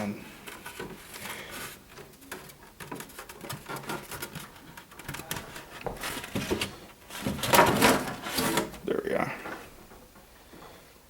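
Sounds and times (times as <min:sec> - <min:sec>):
styrofoam lid scraping and squeaking: 0:00.4 - 0:08.8.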